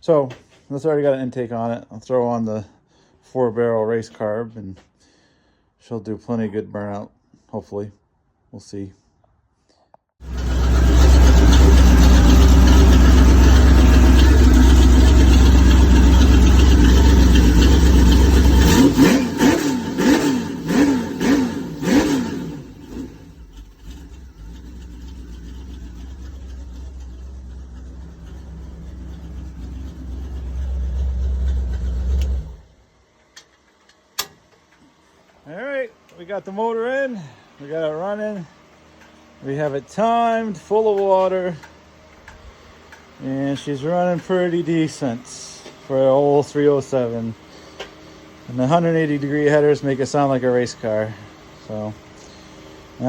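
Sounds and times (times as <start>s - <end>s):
car engine running: 10.2s - 32.8s
engine throttle blips: 10.2s - 32.8s.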